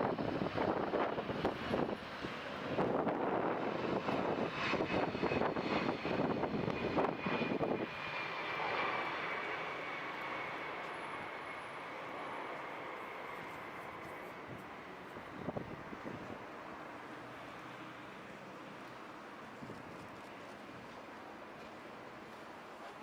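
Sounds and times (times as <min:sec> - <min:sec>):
high jet whine: 0:00.0 - 0:17.0
jet engine roar: 0:00.0 - 0:23.0.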